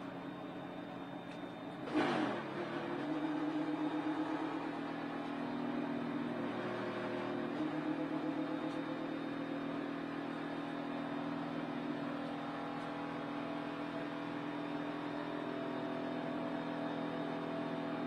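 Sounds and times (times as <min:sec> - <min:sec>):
race car engine running: 0:01.7 - 0:18.0.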